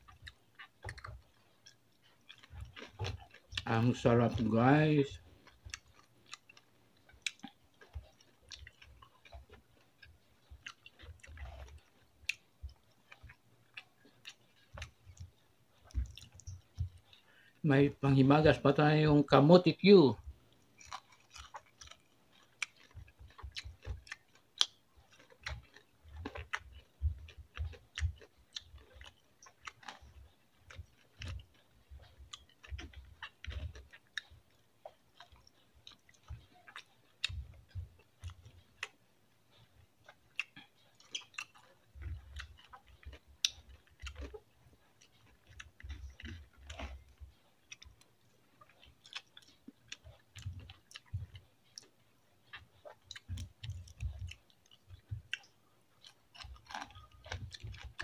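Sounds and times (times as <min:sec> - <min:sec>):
wet mouth clicks and smacks: 0:00.0 - 0:03.8, 0:05.5 - 0:17.6, 0:20.5 - 0:58.0
man chewing food: 0:00.0 - 0:58.0
soft low thumps: 0:26.9 - 0:28.1.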